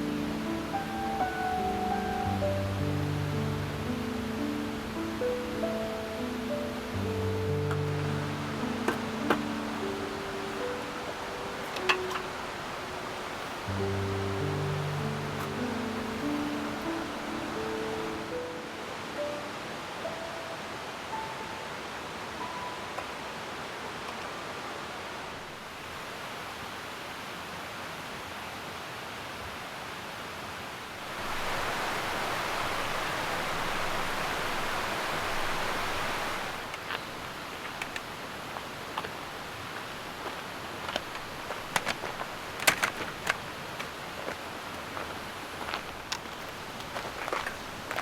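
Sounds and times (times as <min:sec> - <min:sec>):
steady rushing noise: 0:31.0 - 0:48.0.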